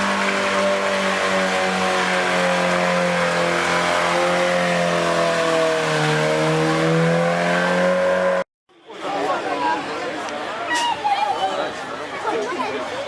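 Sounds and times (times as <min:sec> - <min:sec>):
car engine at high revs: 0:00.0 - 0:08.5.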